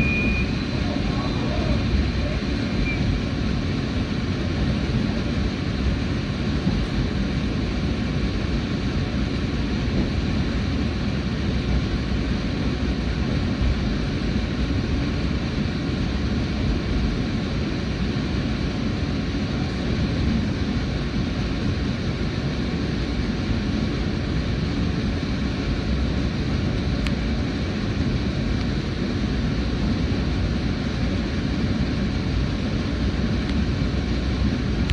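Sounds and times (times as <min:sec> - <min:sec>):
faint high whine: 0:00.0 - 0:05.3
train interior rumble: 0:00.0 - 0:34.9.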